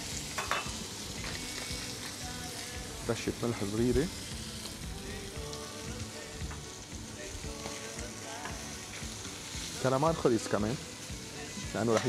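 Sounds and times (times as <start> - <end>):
calamari sizzling in a pan: 0.0 - 12.0.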